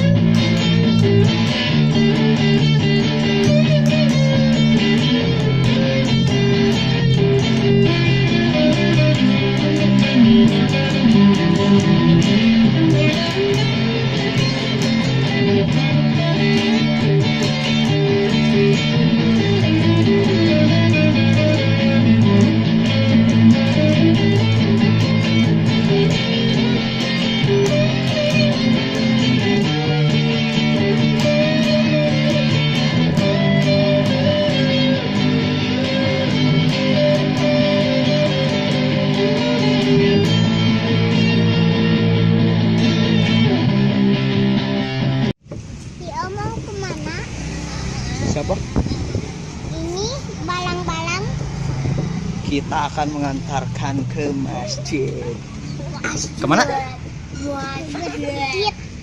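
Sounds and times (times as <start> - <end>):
guitar music with bass: 0.0 - 59.0.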